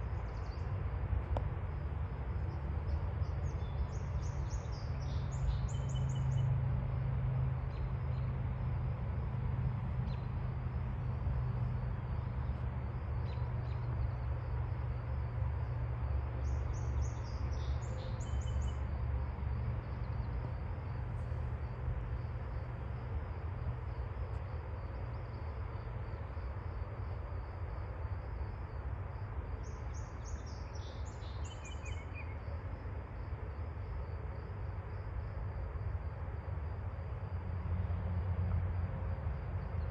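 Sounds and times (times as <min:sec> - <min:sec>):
bird chirping: 0:29.9 - 0:32.4.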